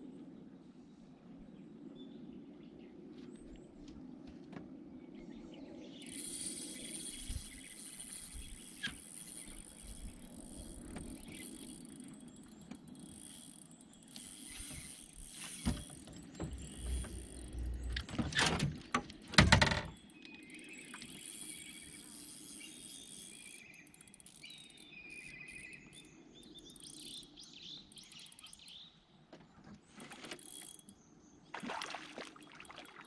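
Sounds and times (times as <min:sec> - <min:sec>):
insects buzzing: 0:05.9 - 0:28.8.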